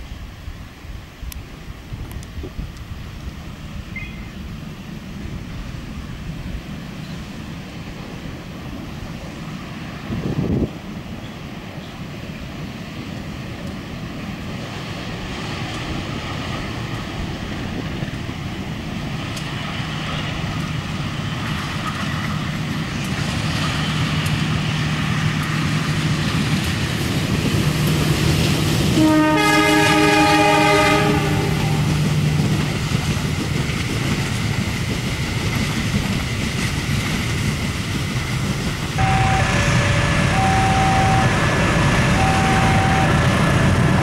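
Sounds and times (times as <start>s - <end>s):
diesel train running: 0.9s - 44.0s
locomotive horn blast: 29.0s - 32.0s, 39.0s - 44.0s.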